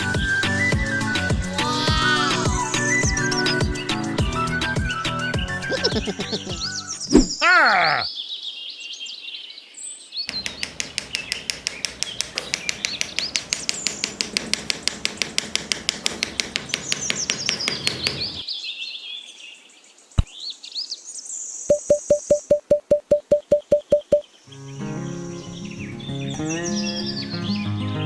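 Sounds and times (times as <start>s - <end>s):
small birds chirping: 10.2s - 18.5s
fast sharp tapping: 10.3s - 18.4s, 21.7s - 24.2s
sharp click: 10.3s - 18.4s, 21.7s - 24.2s.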